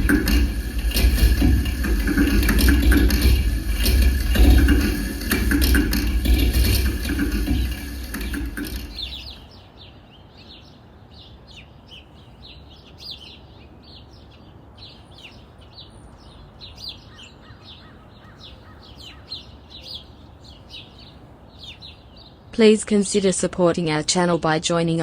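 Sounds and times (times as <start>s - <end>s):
dense loud noise music: 0.0s - 9.4s
birds chirping: 0.0s - 25.0s.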